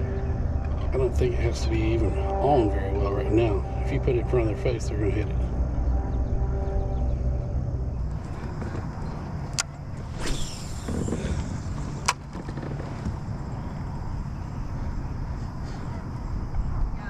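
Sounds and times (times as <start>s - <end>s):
low rumble: 0.0s - 17.0s
brief swish: 10.1s - 10.9s.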